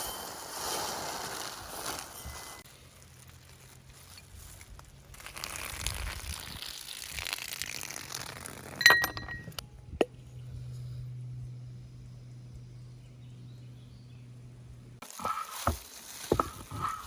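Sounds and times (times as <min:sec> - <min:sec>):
cookware clinking: 0:08.8 - 0:09.6.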